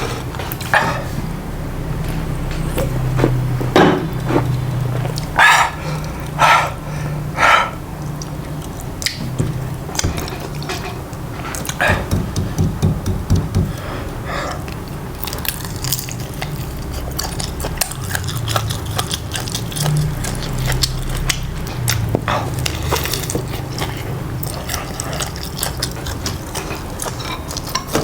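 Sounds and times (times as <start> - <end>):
biting and chewing: 14.6 - 28.0.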